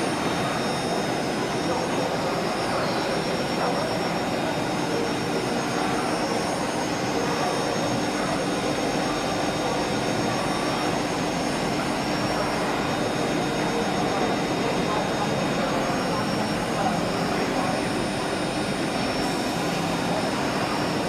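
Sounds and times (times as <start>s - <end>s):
drilling machine whirring hum: 0.0s - 21.0s.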